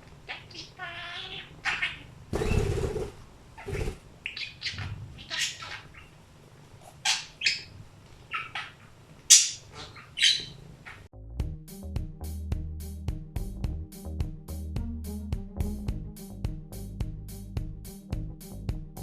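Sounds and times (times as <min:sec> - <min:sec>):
budgerigar chirping: 0:00.3 - 0:06.2, 0:06.8 - 0:11.1.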